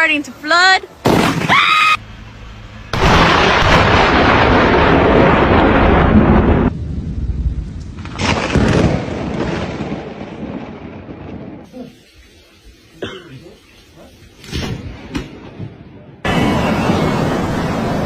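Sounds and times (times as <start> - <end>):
thunder rumbling: 2.1 - 11.8, 14.8 - 18.0
loud thunder crash: 2.9 - 11.7.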